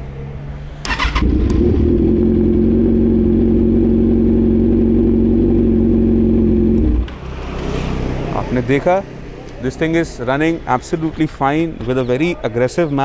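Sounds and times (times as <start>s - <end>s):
motorcycle engine idling: 0.8s - 7.4s.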